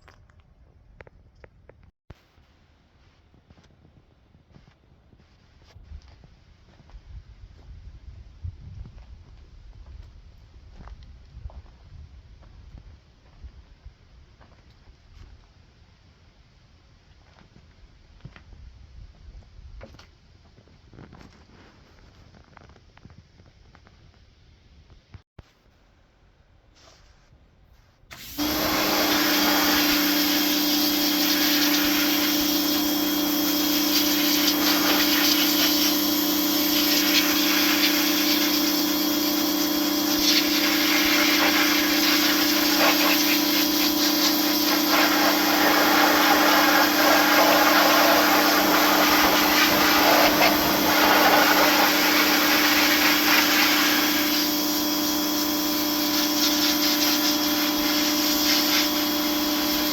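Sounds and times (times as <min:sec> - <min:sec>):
motor-driven machine humming: 0:28.3 - 0:59.9.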